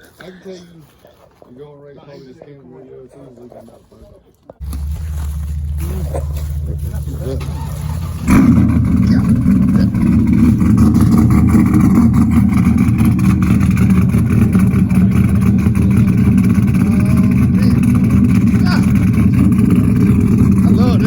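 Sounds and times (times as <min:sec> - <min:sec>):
vehicle engine running loudly: 0:04.6 - 0:21.0.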